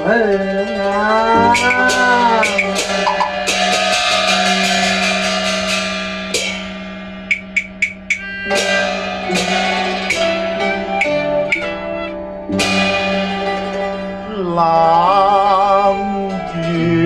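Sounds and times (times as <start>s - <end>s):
sustained instrumental melody: 0.0s - 17.0s
sharp percussion clicks: 1.4s - 14.0s.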